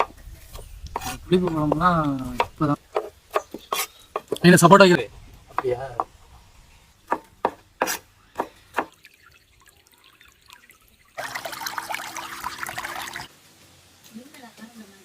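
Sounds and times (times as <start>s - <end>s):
water running: 7.1s - 13.3s.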